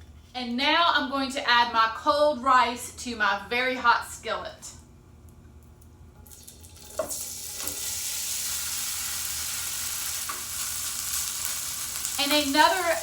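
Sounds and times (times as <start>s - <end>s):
rice sizzling in hot oil: 6.3s - 13.0s.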